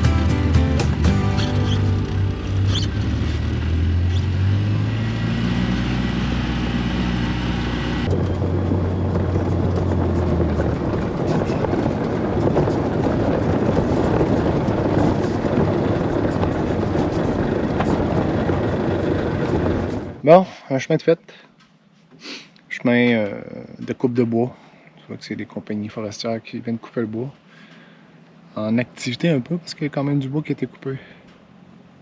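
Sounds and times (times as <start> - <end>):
utility vehicle driving: 0.0 - 20.2
tyres rumbling: 0.0 - 20.3
wind noise: 7.3 - 20.2.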